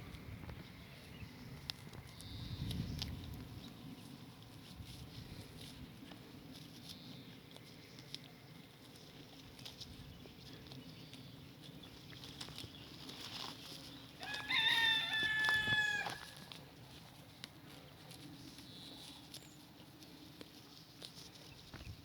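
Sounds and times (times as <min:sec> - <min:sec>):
rooster crowing: 0:14.2 - 0:16.4.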